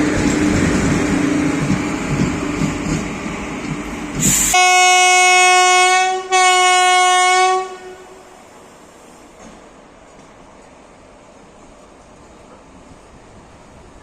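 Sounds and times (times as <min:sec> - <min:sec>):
train rumbling: 0:00.0 - 0:14.0
locomotive horn blasts: 0:04.5 - 0:08.4.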